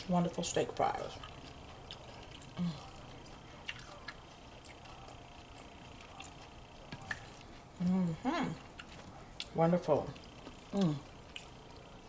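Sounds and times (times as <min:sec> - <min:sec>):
quiet chewing: 0:00.7 - 0:12.0
lip smacks and mouth clicks: 0:03.6 - 0:07.5, 0:10.2 - 0:12.0.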